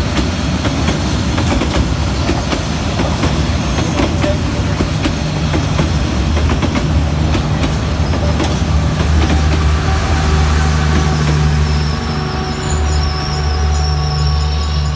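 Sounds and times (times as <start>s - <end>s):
train wheels clicking over rail joints: 0.0s - 9.7s.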